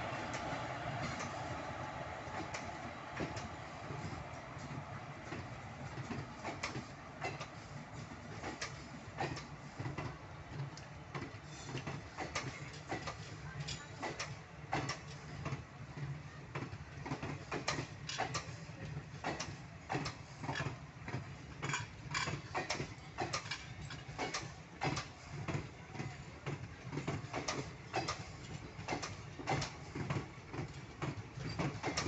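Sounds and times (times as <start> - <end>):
train coaches rumbling past: 0.0 - 32.0
wheel clicks over rail joints: 5.2 - 7.7, 8.3 - 15.7, 16.5 - 32.0.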